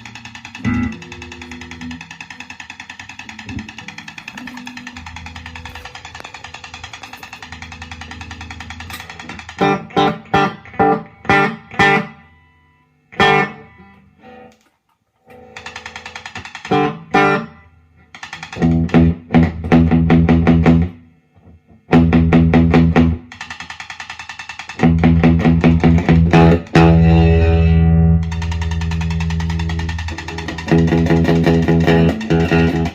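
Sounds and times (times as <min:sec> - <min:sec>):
electric guitar strummed chords: 0:00.0 - 0:02.1, 0:13.2 - 0:14.5, 0:24.8 - 0:32.9.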